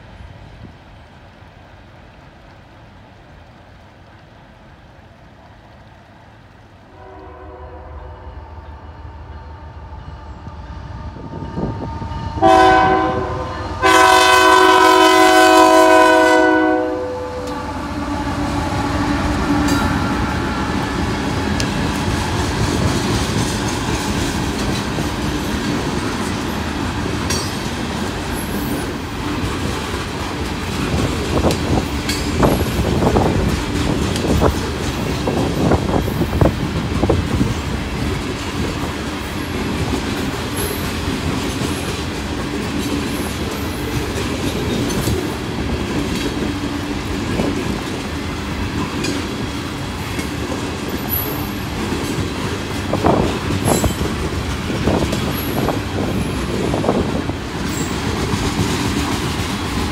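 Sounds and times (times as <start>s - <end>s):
freight train wheels rumbling: 0.0s - 59.9s
locomotive air horn: 6.9s - 21.4s
clickety-clack over rail joints: 13.8s - 59.9s.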